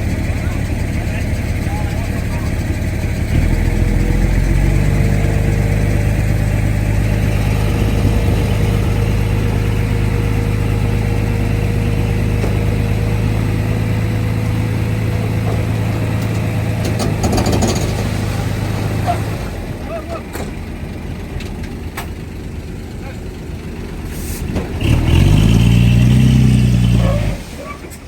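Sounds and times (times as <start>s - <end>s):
rattles: 0.0s - 18.8s
heavy diesel engine droning: 0.0s - 28.0s.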